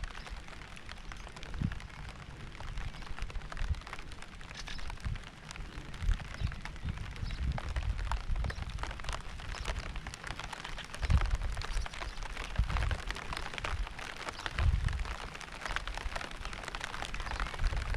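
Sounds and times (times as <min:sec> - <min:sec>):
rain hiss: 0:00.0 - 0:17.9
raindrops ticking: 0:00.0 - 0:17.9.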